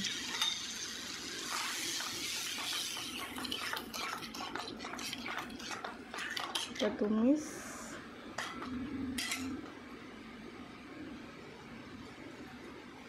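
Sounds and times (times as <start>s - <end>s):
paste sizzling in hot oil: 0.0s - 6.8s
spatula scraping a pan: 1.4s - 6.9s.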